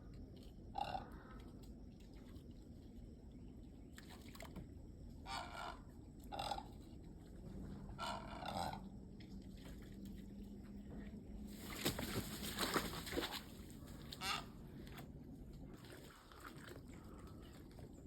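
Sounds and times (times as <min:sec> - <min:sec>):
steady low hum: 0:00.0 - 0:18.0
egret croaking calls: 0:14.2 - 0:14.5.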